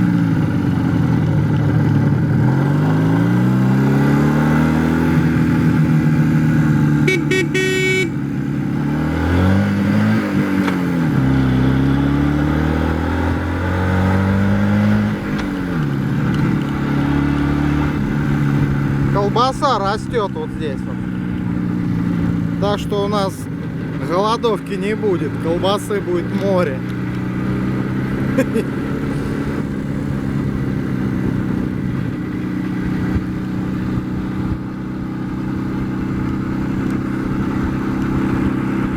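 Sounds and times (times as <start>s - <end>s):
motorcycle engine running: 0.0s - 38.9s
horn beeping: 7.0s - 8.3s.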